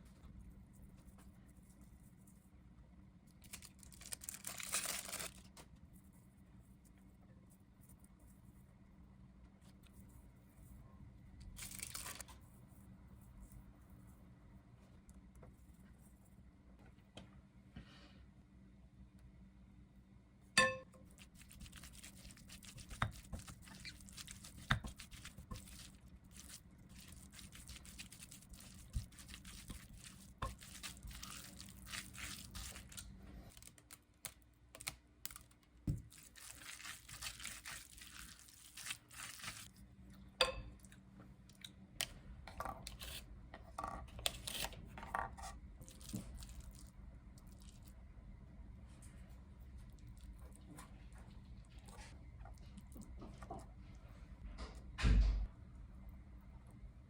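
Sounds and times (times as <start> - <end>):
faint hiss and hum: 0.0 - 57.0
crackling and crunching: 3.4 - 5.6, 21.1 - 39.8.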